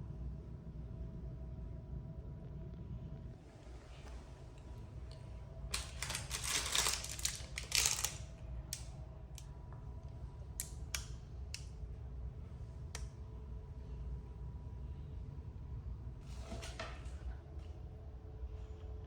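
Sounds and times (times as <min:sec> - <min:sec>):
steady low hum: 0:00.0 - 0:19.0
small hard objects clattering: 0:05.7 - 0:08.2.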